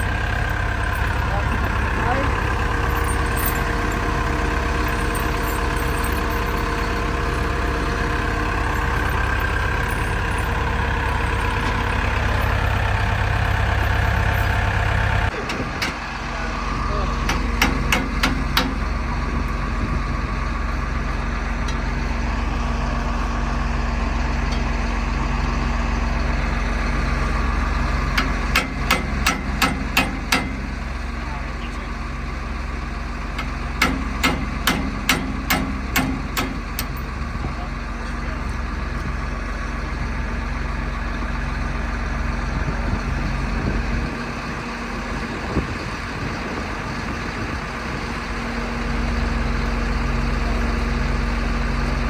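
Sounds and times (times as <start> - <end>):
diesel engine idling: 0.0 - 52.0
sharp metallic knocks: 17.3 - 18.9, 28.2 - 30.8, 33.4 - 37.0.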